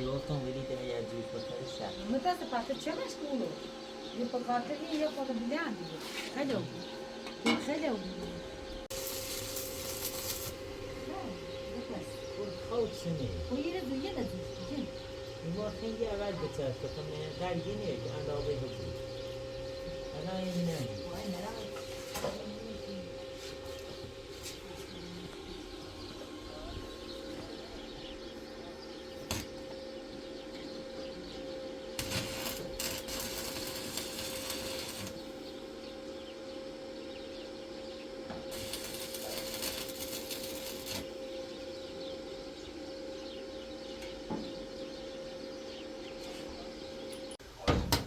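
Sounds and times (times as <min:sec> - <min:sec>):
welding machine humming: 0:00.0 - 0:45.0
welding arc hiss and crackle: 0:08.9 - 0:14.9, 0:29.1 - 0:29.7, 0:32.0 - 0:35.6, 0:38.3 - 0:41.6.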